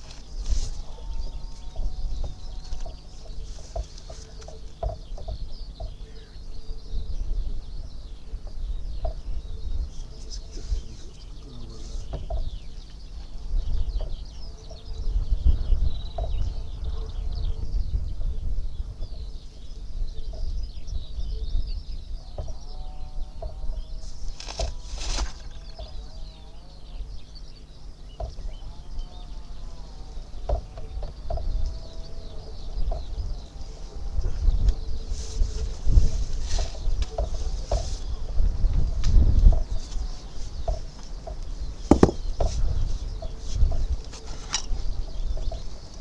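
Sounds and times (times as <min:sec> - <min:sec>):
low bird calls: 0:00.0 - 0:46.0
small birds chirping: 0:00.0 - 0:46.0
short knocks: 0:12.0 - 0:12.6, 0:40.6 - 0:44.7.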